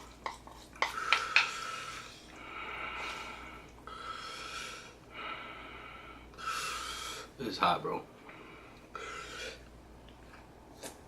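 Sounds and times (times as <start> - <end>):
man breathing hard through mouth: 0.9 - 7.4.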